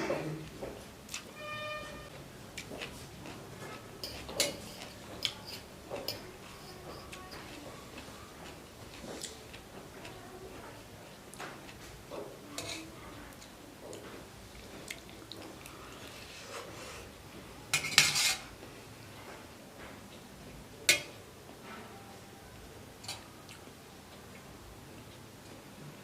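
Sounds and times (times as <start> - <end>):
cutlery scraping on a plate: 3.7 - 7.6, 12.6 - 12.9, 17.7 - 18.5.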